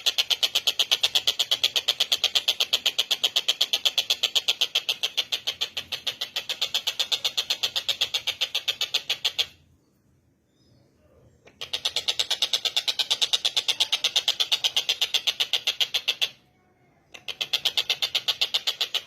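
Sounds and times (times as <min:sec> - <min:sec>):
bird calling in rattling trill: 0:00.0 - 0:09.6, 0:10.6 - 0:19.0.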